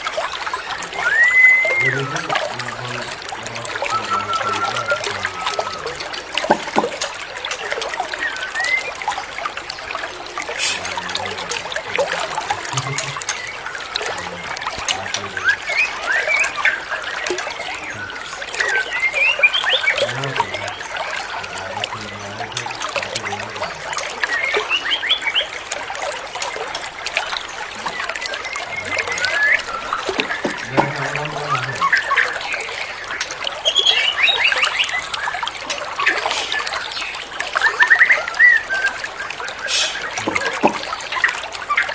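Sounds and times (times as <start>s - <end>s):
water trickling: 0.0s - 41.9s
bird whistling: 0.8s - 2.3s, 3.8s - 7.0s, 8.2s - 9.0s, 18.0s - 20.6s, 28.7s - 32.5s
bird chirps and whistles: 1.0s - 2.2s, 3.9s - 6.8s.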